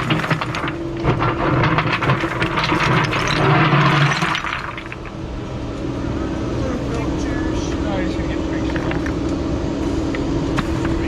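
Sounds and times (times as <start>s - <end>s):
stones clattering: 0.0s - 5.2s, 10.6s - 11.0s
diesel engine running: 0.0s - 11.0s.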